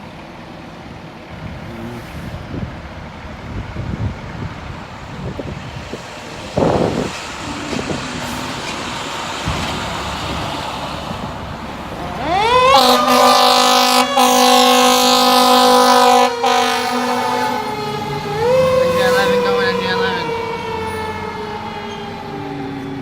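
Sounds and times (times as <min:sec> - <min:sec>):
fire engine running: 0:00.0 - 0:23.0
wind and road noise: 0:00.0 - 0:23.0
siren wailing: 0:11.9 - 0:23.0
low horn-like tone: 0:12.5 - 0:18.0.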